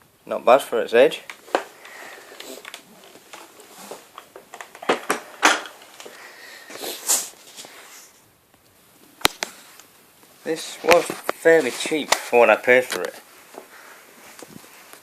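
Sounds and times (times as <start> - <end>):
breathy sniff: 1.8 - 2.6, 6.0 - 8.2.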